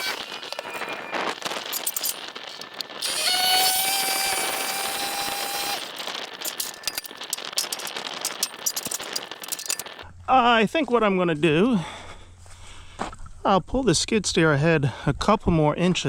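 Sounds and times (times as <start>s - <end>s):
machinery whining: 0.0s - 10.0s
rapid crackling clicks: 0.0s - 10.0s.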